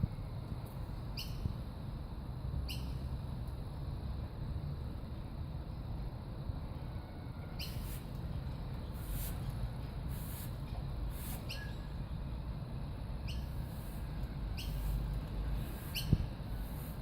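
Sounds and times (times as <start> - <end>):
steady low rumble: 0.0 - 6.7, 11.8 - 17.0
squeaky bird chirps: 11.5 - 11.8, 14.6 - 14.9, 15.8 - 16.2.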